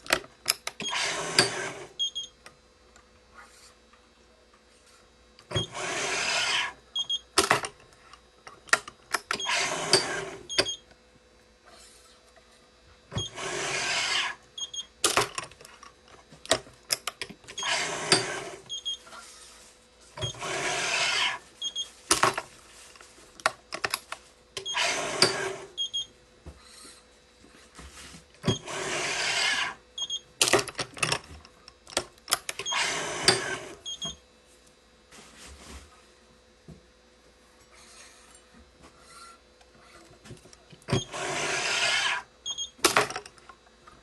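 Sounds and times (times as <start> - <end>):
stringing machine pulling string: 0.6 - 2.0, 5.5 - 6.8, 8.7 - 10.7, 13.1 - 14.4, 17.4 - 18.8, 20.2 - 21.4, 24.6 - 25.9, 28.4 - 29.8, 32.5 - 34.0, 40.9 - 43.0.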